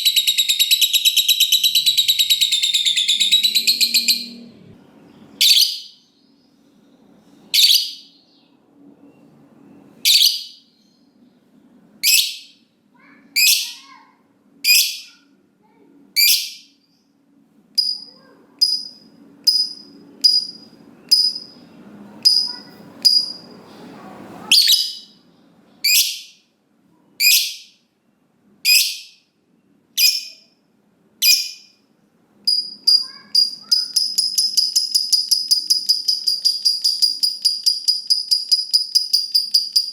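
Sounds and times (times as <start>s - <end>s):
lovebird high-pitched calls: 0.0s - 4.5s, 5.3s - 6.2s, 7.5s - 8.4s, 10.0s - 10.8s, 12.0s - 12.6s, 13.4s - 14.0s, 14.6s - 15.2s, 16.2s - 16.8s, 17.8s - 23.5s, 24.4s - 25.2s, 25.8s - 26.4s, 27.2s - 27.8s, 28.6s - 29.2s, 30.0s - 30.6s, 31.2s - 31.8s, 32.5s - 39.9s.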